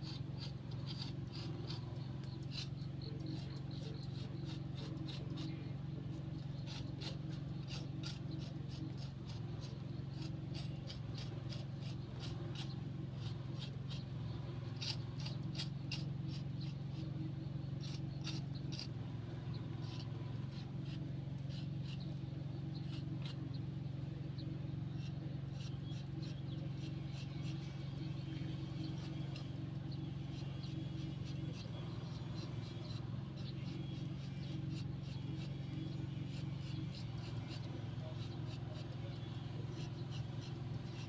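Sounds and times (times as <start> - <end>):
small clicks and scrapes: 0.0 - 17.1, 17.8 - 23.6
steady low hum: 0.0 - 41.0.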